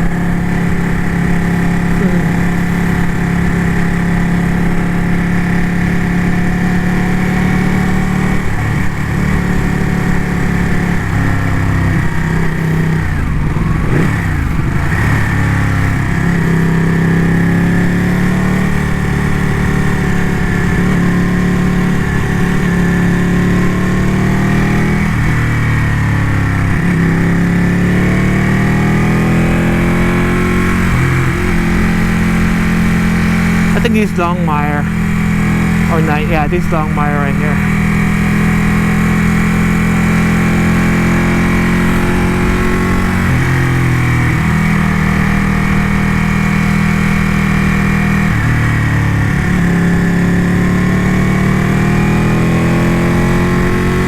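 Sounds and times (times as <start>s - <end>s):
motorcycle engine running: 0.0s - 33.7s.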